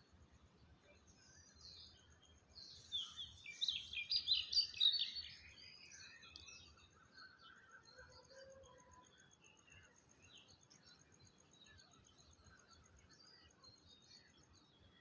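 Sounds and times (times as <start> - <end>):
wild birds chirping and twittering: 0.5 - 8.4.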